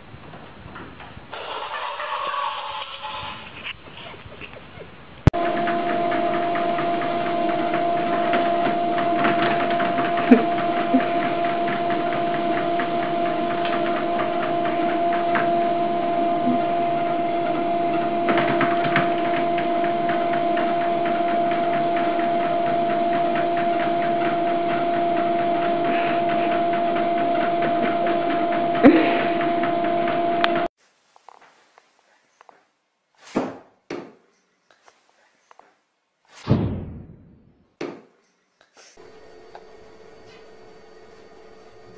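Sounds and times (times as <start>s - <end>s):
mechanical hum with motor whir: 5.3s - 30.7s, 39.0s - 41.9s.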